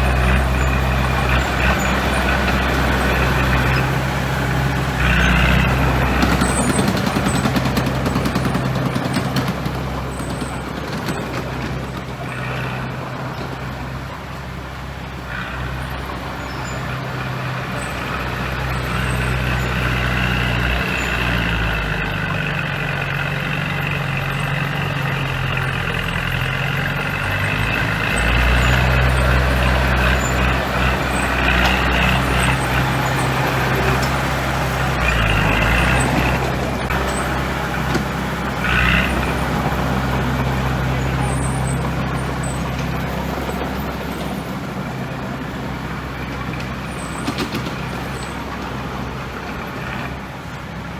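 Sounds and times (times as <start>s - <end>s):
heavy machinery diesel engines: 0.0s - 50.9s.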